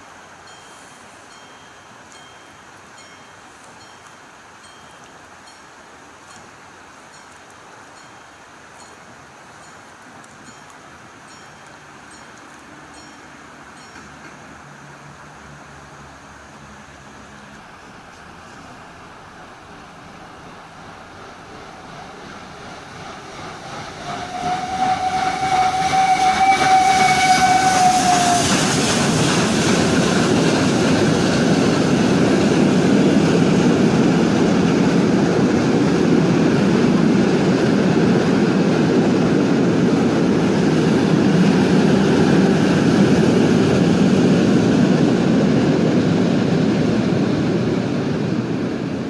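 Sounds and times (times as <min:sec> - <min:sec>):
train passing rumble: 0:00.0 - 0:49.0
train horn: 0:24.0 - 0:28.9.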